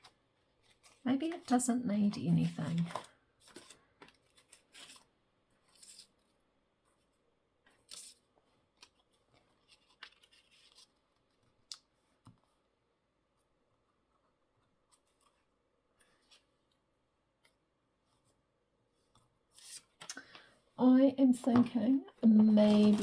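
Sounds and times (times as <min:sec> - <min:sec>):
paper rustling and tapping: 0:00.0 - 0:05.0, 0:21.4 - 0:23.0.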